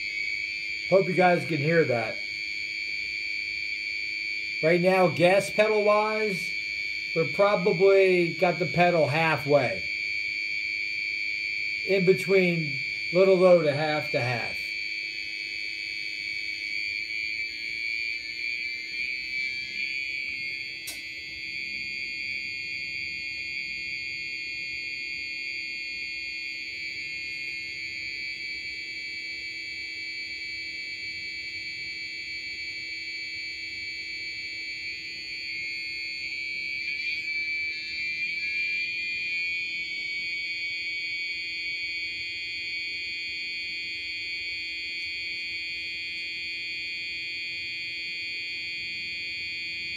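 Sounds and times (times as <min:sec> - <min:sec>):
high-pitched electronic beeper tone: 0:00.8 - 0:02.3, 0:04.6 - 0:10.0, 0:11.6 - 0:14.8, 0:35.6 - 0:41.4
single click: 0:20.8 - 0:21.0.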